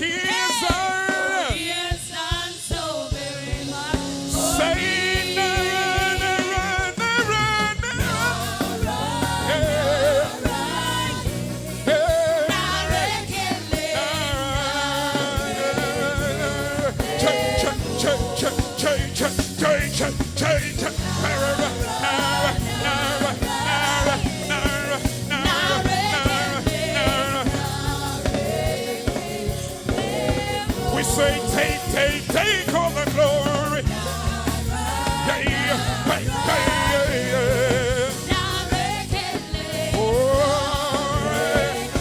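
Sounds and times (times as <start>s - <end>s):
drums: 0.0s - 42.0s
voices singing: 0.0s - 42.0s
bass line: 3.7s - 42.0s.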